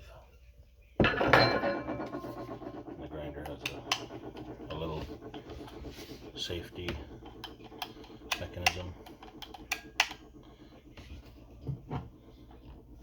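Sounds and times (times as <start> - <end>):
grinder mechanism clicking: 6.7 - 10.5.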